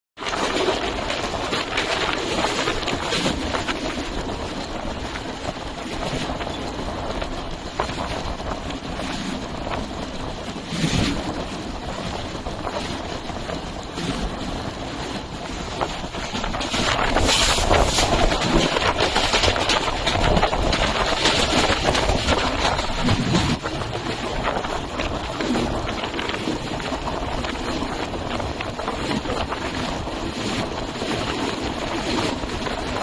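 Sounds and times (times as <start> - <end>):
train wheels rumbling on rails: 0.2 - 33.0
wind buffeting microphone: 0.2 - 33.0.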